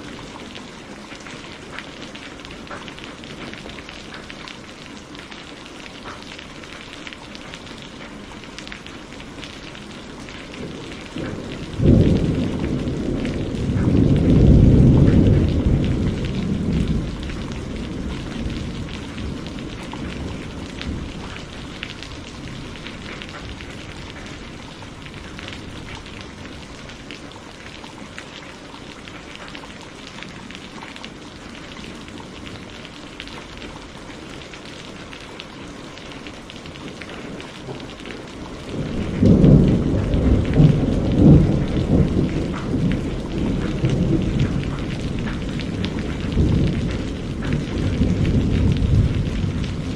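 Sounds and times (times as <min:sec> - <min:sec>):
steady rain falling: 0:00.0 - 0:49.9
rolling thunder: 0:10.4 - 0:27.0, 0:37.4 - 0:49.9.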